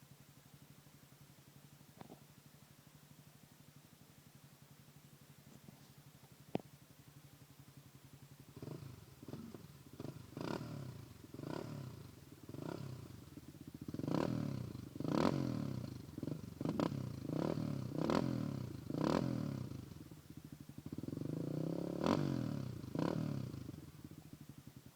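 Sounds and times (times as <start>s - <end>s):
atv engine idling and revving: 6.0s - 24.9s.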